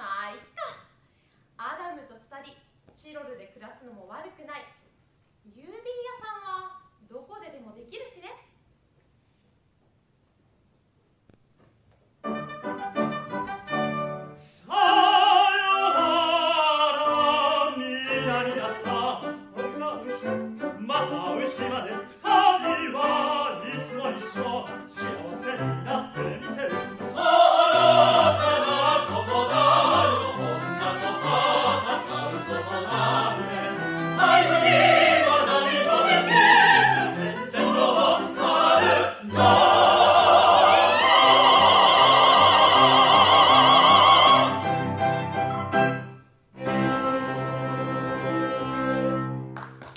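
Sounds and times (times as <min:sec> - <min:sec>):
operetta singing with vibrato: 0:13.0 - 0:44.9
string orchestra accompaniment: 0:39.2 - 0:49.5.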